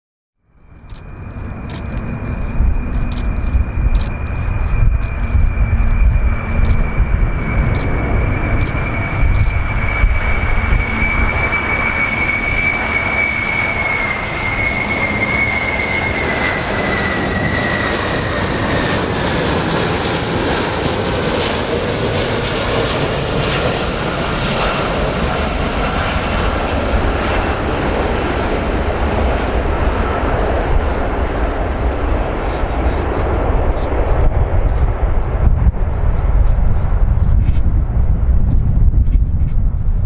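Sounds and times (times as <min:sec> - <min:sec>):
airplane engines running: 0:00.4 - 0:40.0
high engine whine falling in pitch: 0:00.5 - 0:19.0.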